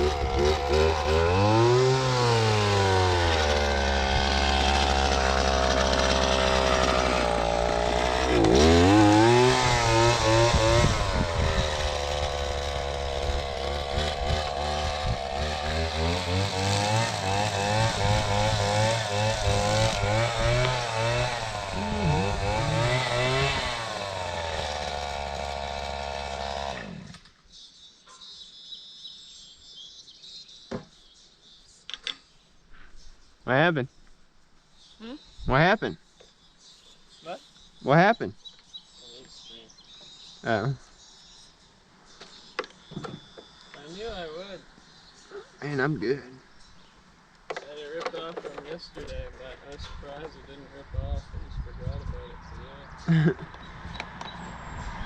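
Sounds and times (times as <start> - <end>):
mower engine revving: 0.0 - 27.2.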